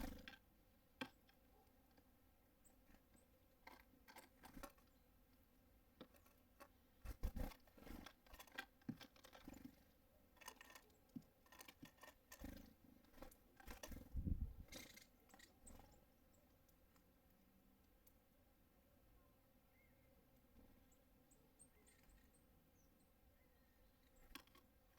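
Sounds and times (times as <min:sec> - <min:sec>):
birds pecking and hopping on feeder: 0:00.0 - 0:18.7, 0:19.8 - 0:24.9.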